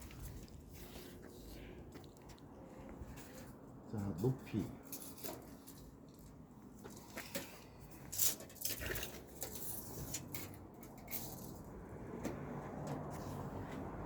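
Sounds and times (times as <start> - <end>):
tape measure clicks and rustles: 4.1 - 11.7.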